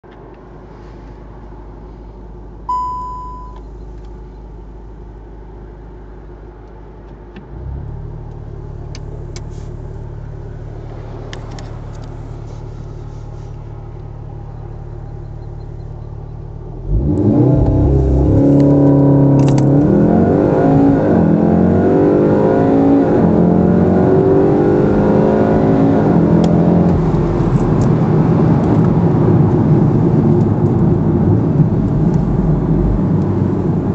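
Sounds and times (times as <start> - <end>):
short beep: 2.7 - 3.7
car engine revving and accelerating: 16.6 - 33.9.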